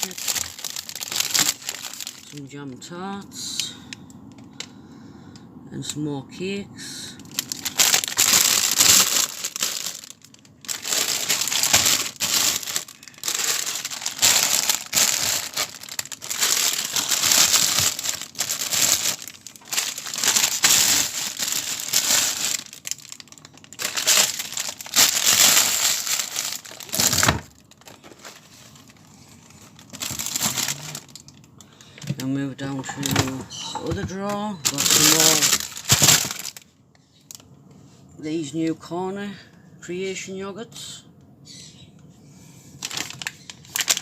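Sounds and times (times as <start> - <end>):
packets crinkling and rustling: 0.0 - 2.5, 7.2 - 36.7, 42.8 - 44.0.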